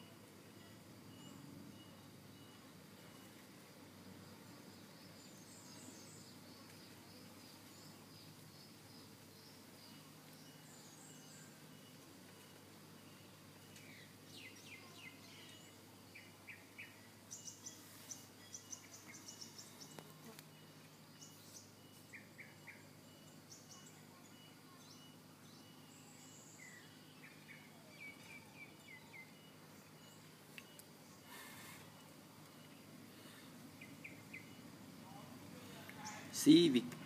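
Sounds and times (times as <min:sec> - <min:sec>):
background hiss: 0:00.0 - 0:37.0
small birds chirping: 0:00.0 - 0:37.0.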